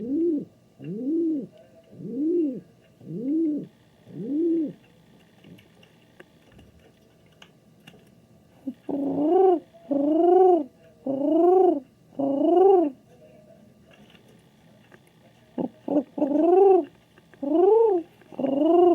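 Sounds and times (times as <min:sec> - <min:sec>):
pigeon cooing: 0:00.0 - 0:04.9, 0:08.6 - 0:13.0, 0:15.6 - 0:18.9.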